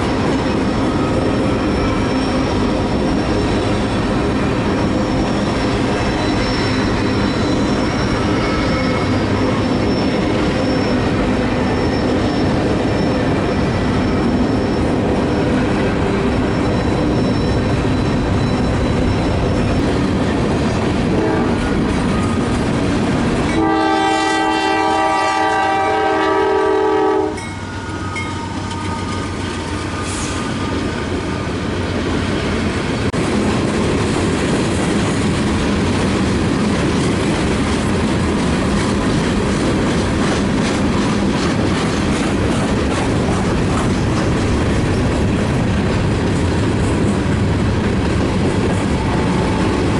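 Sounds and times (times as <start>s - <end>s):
train passing rumble: 0.0s - 49.9s
locomotive horn blast: 21.0s - 22.3s, 23.5s - 30.4s.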